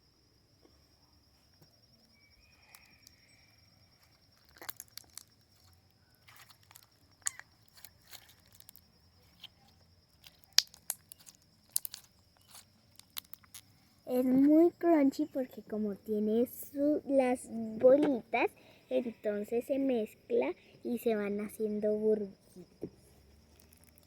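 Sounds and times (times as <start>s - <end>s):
slime crackling and popping: 4.4s - 8.8s, 10.2s - 13.7s, 23.5s - 24.0s.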